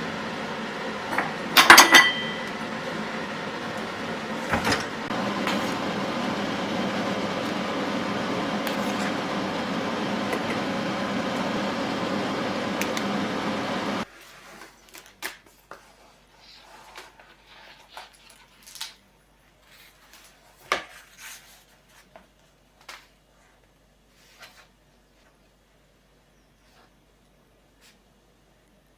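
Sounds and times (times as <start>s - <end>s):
mechanical whir of appliance: 0.0s - 14.1s.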